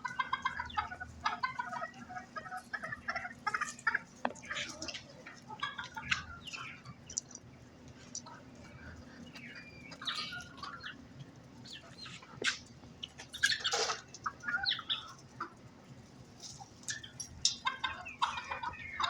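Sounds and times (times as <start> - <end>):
hen clucking: 0.0 - 19.0.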